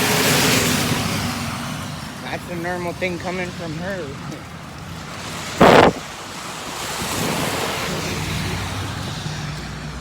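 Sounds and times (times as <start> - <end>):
tyre hiss on wet street: 5.2 - 10.0
loud noise blast: 5.6 - 6.0.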